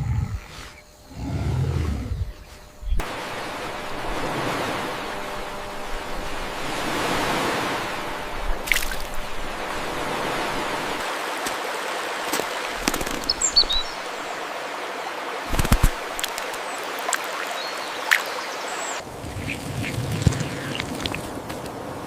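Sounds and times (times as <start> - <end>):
running water rushing: 3.0 - 21.4
small splashes and drips: 7.9 - 14.2, 15.5 - 18.6
high bird chirps: 13.0 - 14.2.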